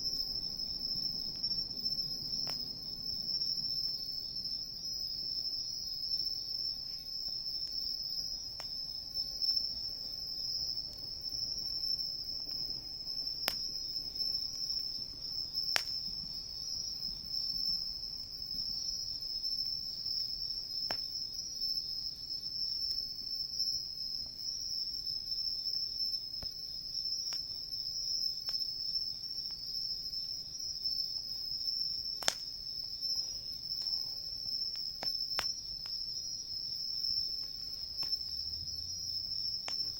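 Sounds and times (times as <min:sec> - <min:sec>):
insects chirping: 0:00.0 - 0:39.9
wood fire hissing: 0:00.0 - 0:39.9
burning wood popping: 0:06.2 - 0:21.4, 0:30.9 - 0:38.4, 0:39.2 - 0:39.9.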